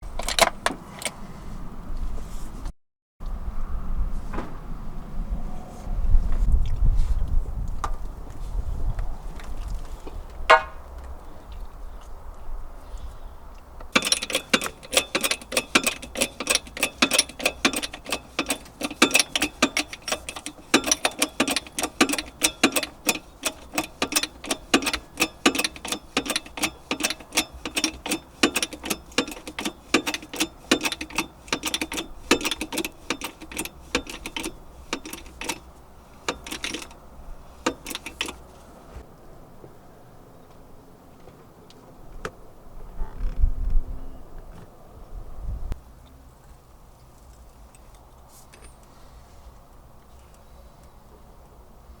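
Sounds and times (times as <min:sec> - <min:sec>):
hammer striking steel: 0:10.5 - 0:10.8.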